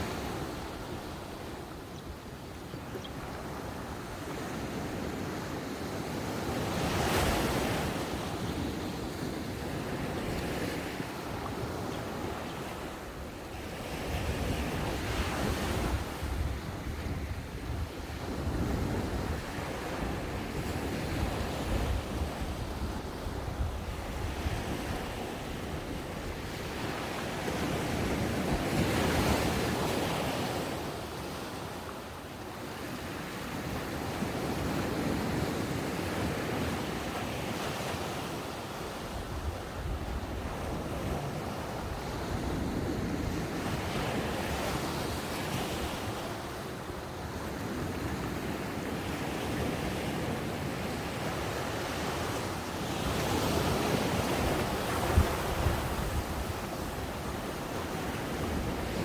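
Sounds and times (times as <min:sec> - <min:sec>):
ocean waves breaking on beach: 0:00.0 - 0:59.0
wind buffeting microphone: 0:11.3 - 0:26.8, 0:53.1 - 0:59.0.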